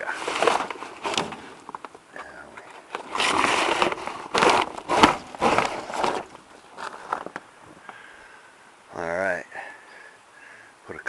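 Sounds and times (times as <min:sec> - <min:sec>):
rustling: 0:00.0 - 0:08.1
parts knocking and clattering: 0:00.2 - 0:02.0.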